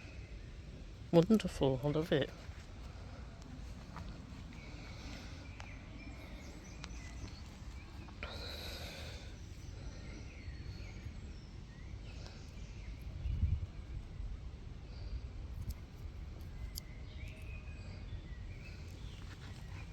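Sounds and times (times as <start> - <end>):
birds calling faintly: 0.0 - 19.9
wind buffeting microphone: 12.6 - 17.0.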